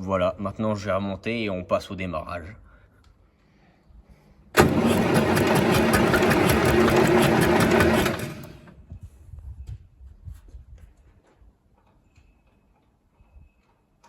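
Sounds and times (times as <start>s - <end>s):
machine motor clattering: 4.6s - 8.8s.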